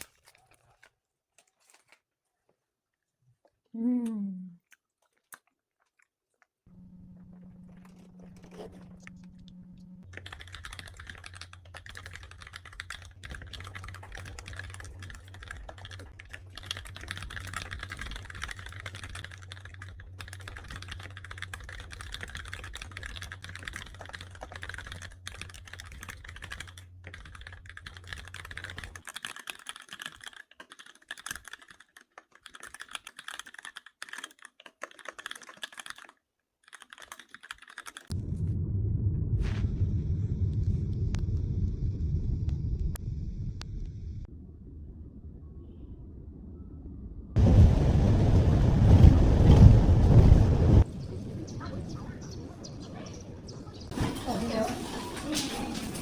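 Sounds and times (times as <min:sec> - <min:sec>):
steady low hum: 0:06.7 - 0:28.7, 0:38.2 - 0:53.7
typing on computer keyboard: 0:10.0 - 0:38.1.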